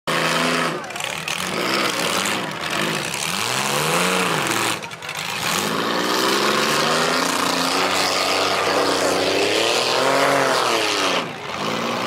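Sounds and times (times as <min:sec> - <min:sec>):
car engines revving: 0:00.1 - 0:12.0.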